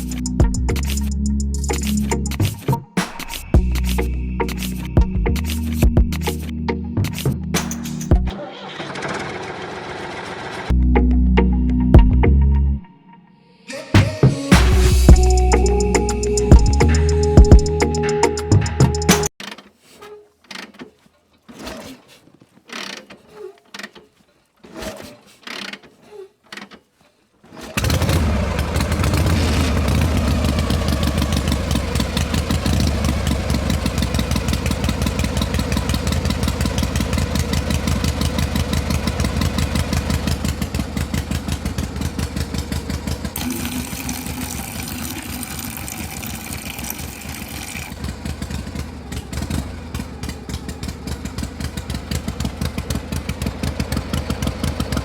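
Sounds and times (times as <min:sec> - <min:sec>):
small motor rattling: 0:27.5 - 0:55.0.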